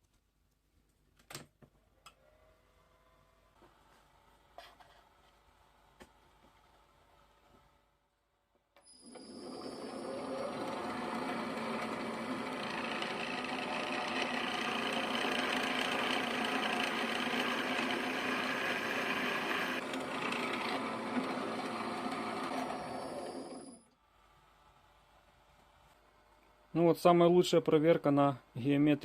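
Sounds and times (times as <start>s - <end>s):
drilling machine humming: 8.9s - 23.8s
high motor whine: 9.1s - 20.2s.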